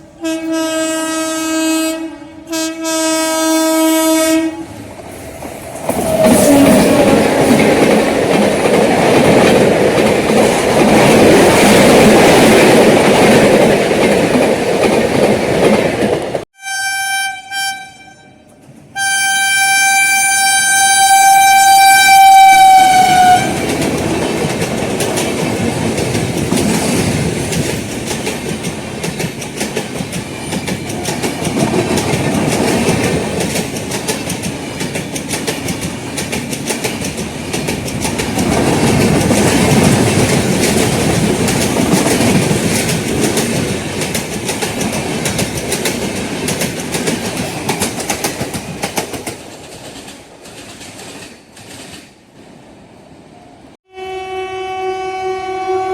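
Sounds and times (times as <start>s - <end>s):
train coaches rumbling over rail joints: 0.0s - 16.4s, 21.6s - 52.7s
train horn: 0.2s - 4.8s, 16.6s - 23.7s, 53.8s - 55.9s.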